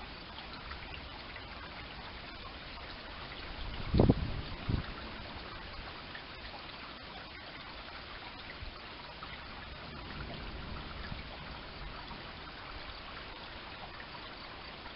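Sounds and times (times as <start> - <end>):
heavy rain on roofs and street: 0.0 - 14.9.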